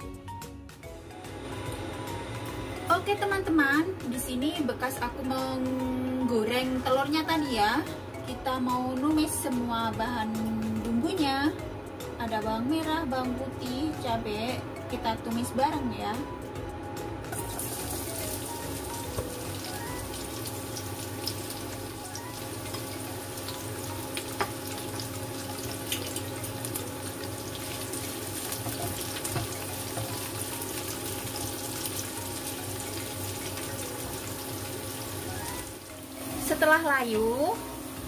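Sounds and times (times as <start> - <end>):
vegetables sizzling in hot oil: 17.4 - 38.0.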